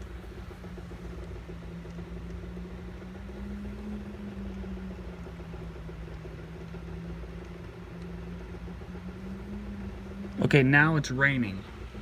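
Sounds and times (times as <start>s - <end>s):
motor droning hum: 0.0s - 12.0s.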